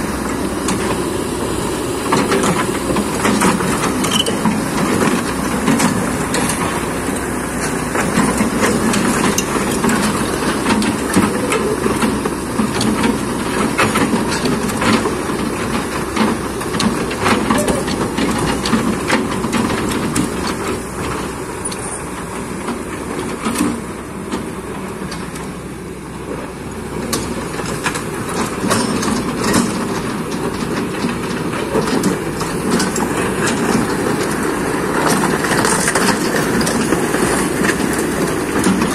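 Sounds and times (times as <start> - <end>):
excavator engine running: 0.0 - 38.9
metal clanking and scraping: 0.1 - 22.2.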